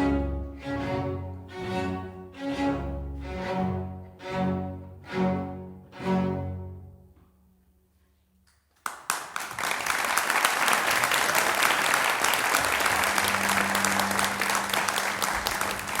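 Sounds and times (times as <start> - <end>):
audience applauding: 8.8 - 16.0.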